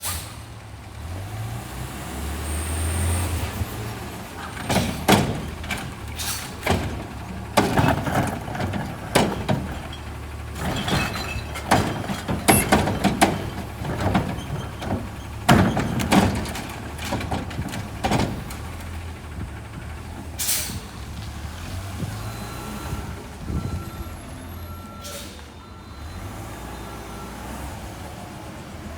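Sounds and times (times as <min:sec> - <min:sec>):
air brake hiss: 0:00.0 - 0:00.4, 0:06.1 - 0:06.6, 0:20.4 - 0:20.9, 0:25.0 - 0:25.6
truck engine idling: 0:03.3 - 0:28.9
metal bangs and clanks: 0:04.1 - 0:20.8.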